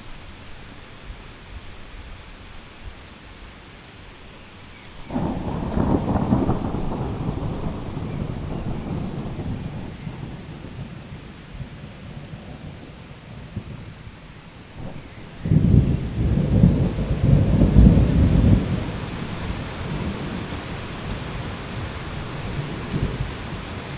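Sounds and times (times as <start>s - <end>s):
heavy rain falling: 0.0s - 23.9s
thunderclap rumbling: 5.1s - 14.0s, 14.8s - 23.9s.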